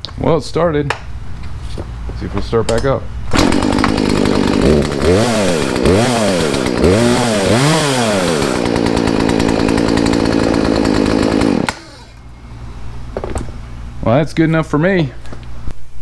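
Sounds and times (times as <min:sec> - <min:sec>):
chainsaw revving and idling: 0:03.3 - 0:12.2.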